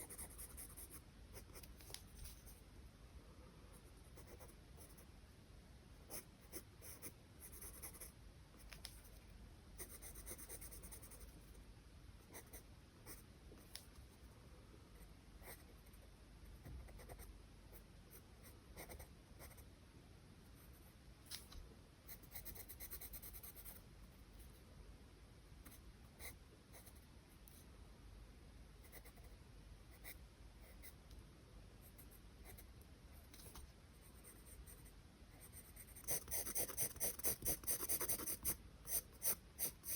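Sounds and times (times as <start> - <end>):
pencil scratching on paper: 0.0 - 2.5, 34.2 - 39.9.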